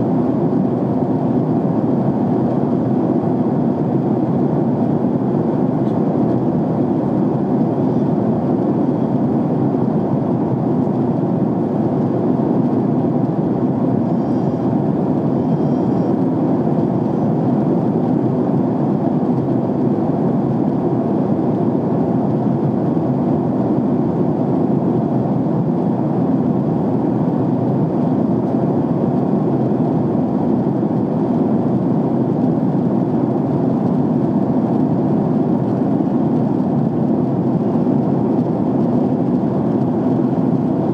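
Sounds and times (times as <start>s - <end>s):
jet airliner cabin roar: 0.0s - 40.9s.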